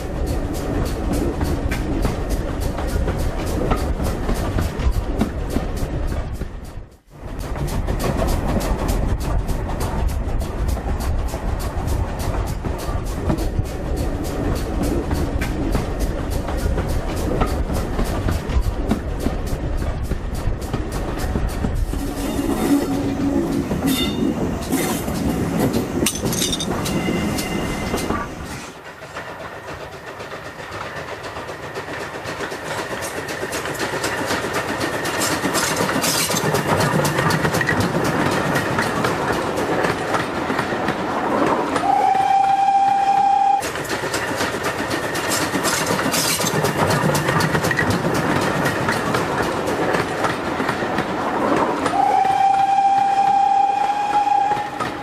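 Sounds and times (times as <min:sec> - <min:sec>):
wheels clattering on rails: 0:00.0 - 0:55.0
steam locomotive whistle: 0:22.0 - 0:25.0, 0:41.7 - 0:43.8, 0:51.8 - 0:55.0.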